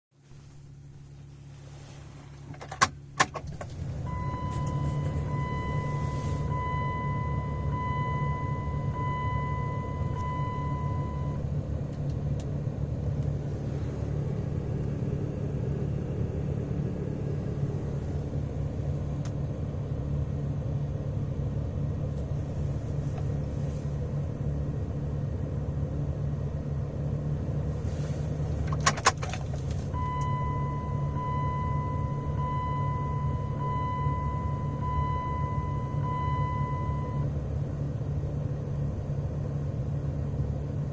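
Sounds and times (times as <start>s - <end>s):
diesel engine starting and idling: 0.2s - 40.9s
electronic warning chime beeping: 4.1s - 11.4s.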